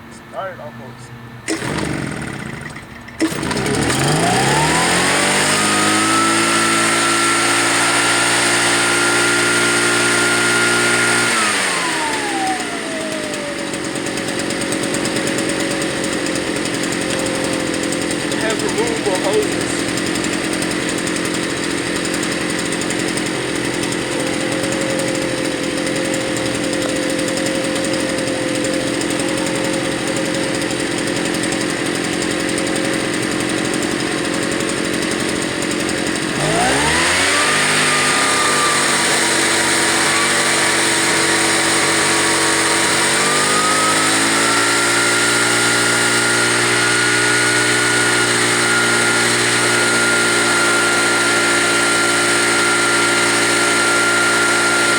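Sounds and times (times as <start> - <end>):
leaf blower engine running: 0.0 - 54.9.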